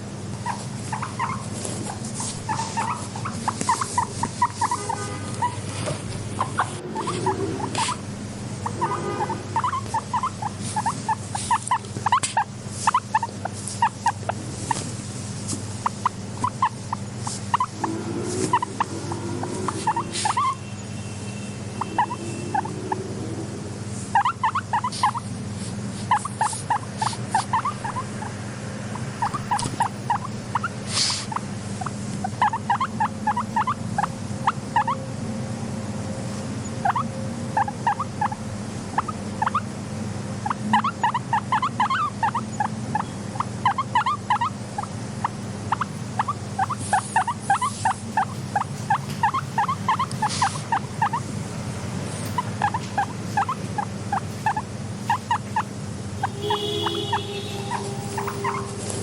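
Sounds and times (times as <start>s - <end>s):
guinea pig squeaking: 0.0s - 23.5s, 24.1s - 25.4s, 26.0s - 35.2s, 36.0s - 59.0s
steady low hum: 0.0s - 59.0s
rustling: 0.5s - 8.0s.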